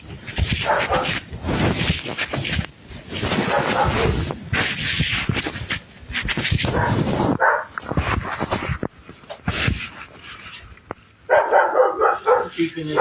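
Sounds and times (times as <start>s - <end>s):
rustling and clattering movement: 0.0s - 13.0s
dog yelping: 6.7s - 7.8s, 11.3s - 12.6s
dog whimpering and barking: 11.3s - 12.6s.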